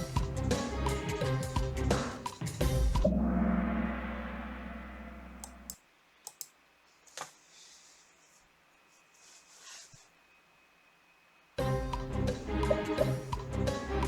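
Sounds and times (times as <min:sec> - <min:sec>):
quiz game music: 0:00.0 - 0:05.7, 0:11.6 - 0:14.0.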